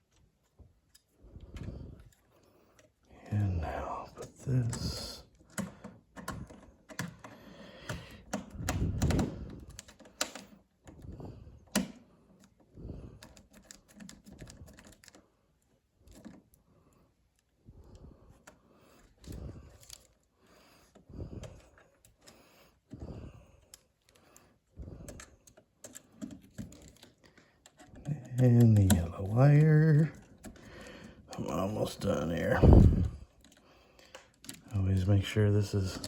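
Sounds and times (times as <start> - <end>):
clicks and knocks on plastic: 5.4 - 11.0.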